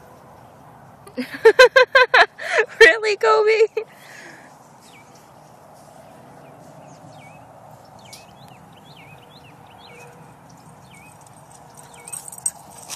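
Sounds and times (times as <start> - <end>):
outdoor background hum: 0.0 - 12.9
small birds chirping: 4.0 - 12.8.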